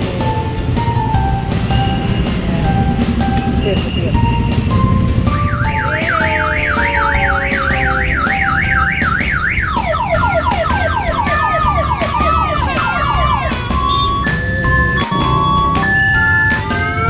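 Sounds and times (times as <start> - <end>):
musical notes: 0.0 - 17.0
electronic siren wail: 4.8 - 17.0.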